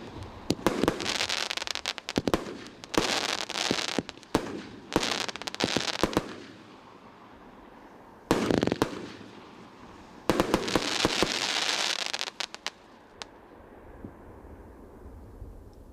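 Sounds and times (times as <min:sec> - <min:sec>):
firework bangs and crackling: 0:00.0 - 0:06.8, 0:08.3 - 0:12.8.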